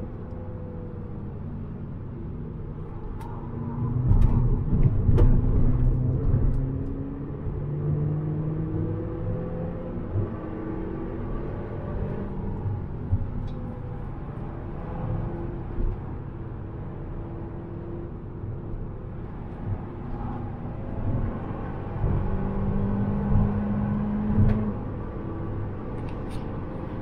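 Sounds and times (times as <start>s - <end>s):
tyre and road noise: 0.0s - 27.0s
car engine running steadily: 8.9s - 27.0s.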